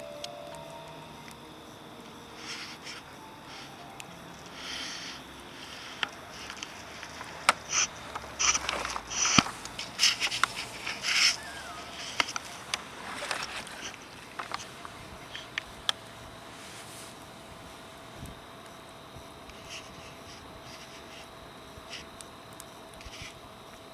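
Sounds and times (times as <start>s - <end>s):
scraping and rustling: 4.6s - 15.6s.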